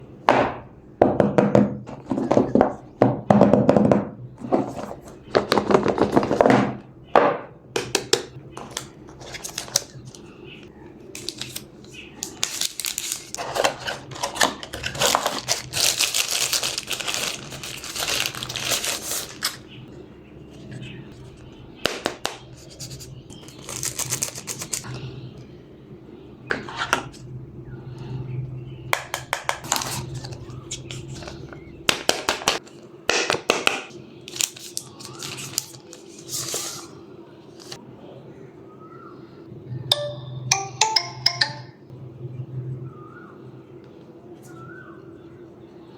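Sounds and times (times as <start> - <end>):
cardboard and packaging rustling: 4.4 - 6.8, 8.6 - 10.4, 11.2 - 19.8, 22.3 - 25.0, 29.6 - 32.8, 34.3 - 37.8.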